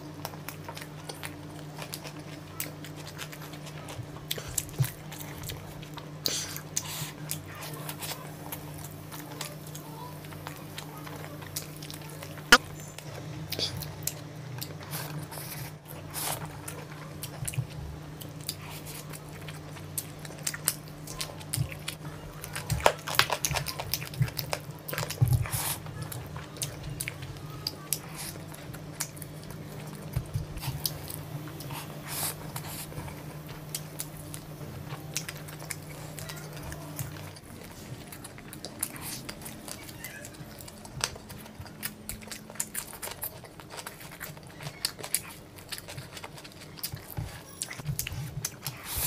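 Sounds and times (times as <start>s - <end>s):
chewing food: 0.0s - 49.0s
steady low hum: 0.0s - 49.0s.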